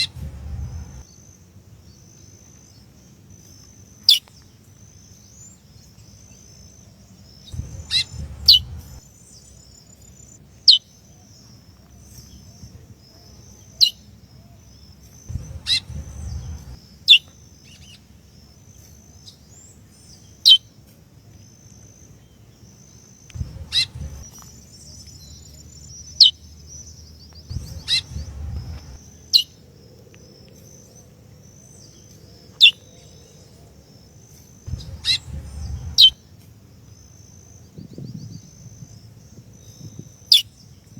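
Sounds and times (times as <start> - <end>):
finch calls: 7.6 - 9.0, 15.3 - 16.8, 23.4 - 24.3, 27.5 - 29.0, 34.7 - 36.2.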